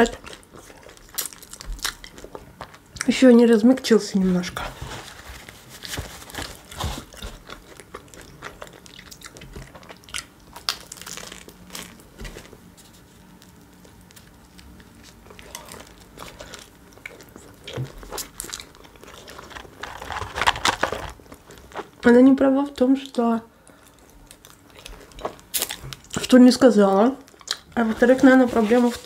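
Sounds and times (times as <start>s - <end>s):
wrapper crinkling: 4.6s - 7.8s, 10.5s - 22.0s, 27.3s - 29.0s
crunchy biting and chewing: 6.5s - 13.0s, 23.9s - 26.2s.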